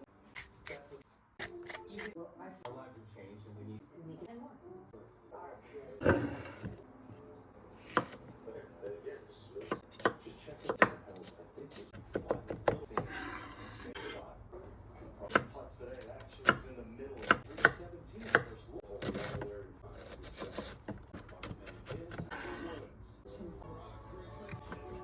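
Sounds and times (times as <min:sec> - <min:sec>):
knife chopping on cutting board: 0:09.6 - 0:11.0, 0:17.2 - 0:22.7.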